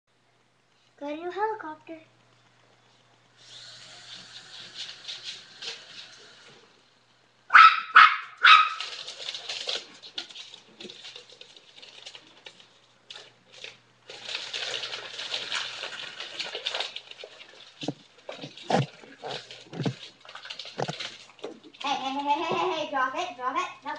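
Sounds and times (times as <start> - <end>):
toy helicopter motor whirring: 3.4 - 6.6
dogs barking: 7.5 - 8.9.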